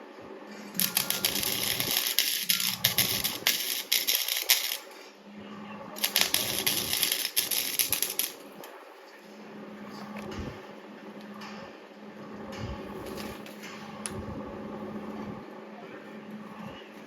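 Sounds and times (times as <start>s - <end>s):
steady low hum: 0.0s - 17.0s
welding arc crackling: 0.8s - 5.0s, 6.0s - 8.9s.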